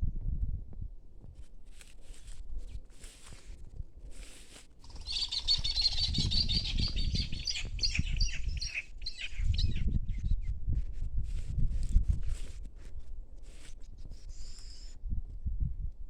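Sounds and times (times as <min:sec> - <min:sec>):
small birds chirping: 0:04.8 - 0:10.5.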